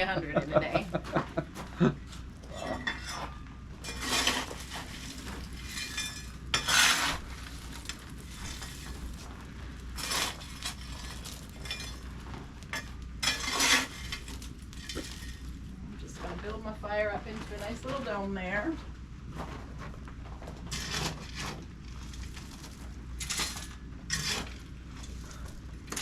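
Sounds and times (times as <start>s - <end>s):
metal tool scraping coal: 2.1s - 15.7s, 20.6s - 26.0s.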